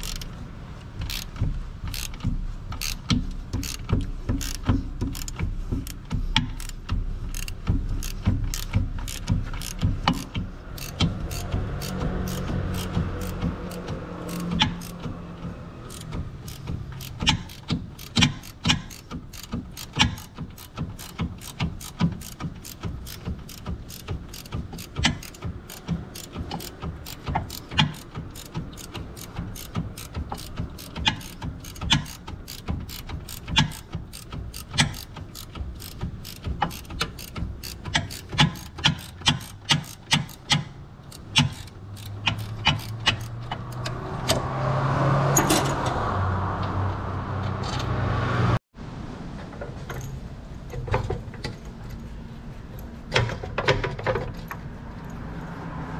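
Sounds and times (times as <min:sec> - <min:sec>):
ratchet wrench clicking: 0:00.0 - 0:44.4.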